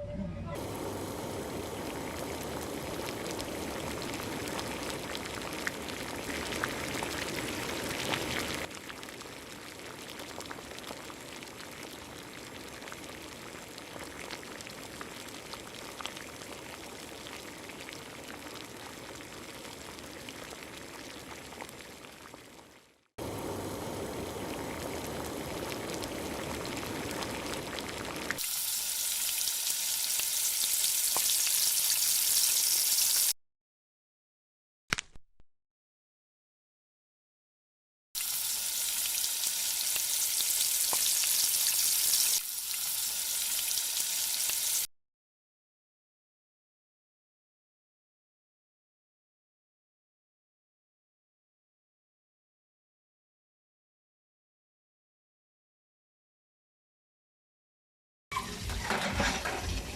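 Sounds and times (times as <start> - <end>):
food sizzling in hot oil: 0.6 - 33.4, 38.2 - 44.9.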